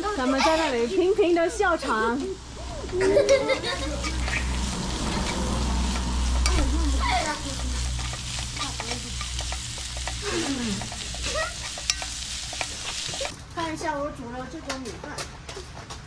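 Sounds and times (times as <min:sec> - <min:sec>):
food sizzling in a pan: 0:00.0 - 0:14.0
children calling or laughing: 0:00.0 - 0:16.0
spatula scraping a pan: 0:03.1 - 0:13.3.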